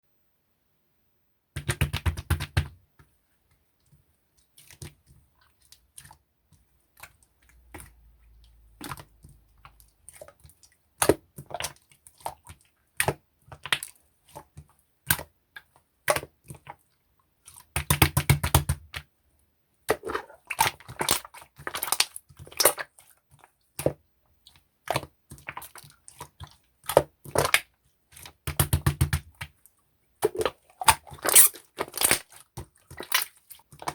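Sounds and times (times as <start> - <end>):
slime squished by hand: 30.2 - 33.9.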